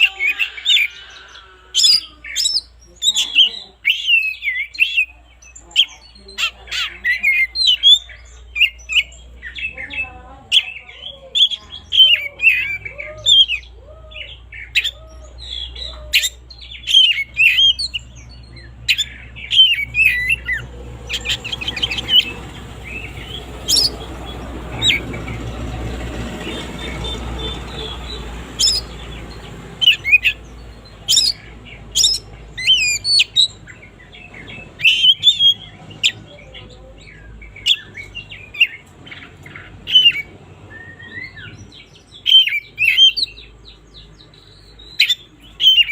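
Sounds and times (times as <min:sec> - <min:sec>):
bird singing whistles and chirps: 0:11.3 - 0:36.2, 0:39.9 - 0:45.9
rushing noise: 0:19.7 - 0:32.0.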